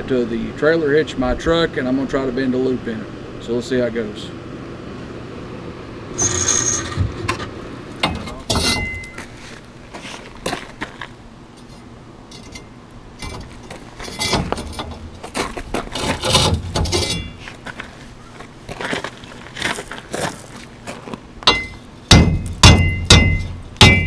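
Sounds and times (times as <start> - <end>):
rebar clanking against metal: 6.2 - 9.2, 11.6 - 15.4, 16.0 - 17.5, 21.5 - 24.0.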